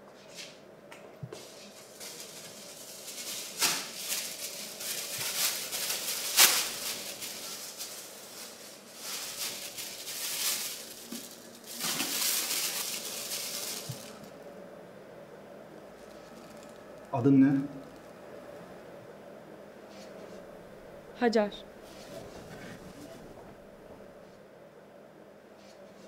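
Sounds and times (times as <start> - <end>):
plastic bag rustling and crinkling: 1.4 - 14.4, 15.9 - 17.0, 21.7 - 24.3.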